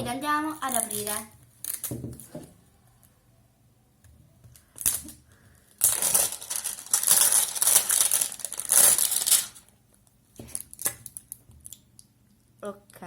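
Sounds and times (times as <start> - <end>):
plastic packaging crinkling: 5.8 - 9.7.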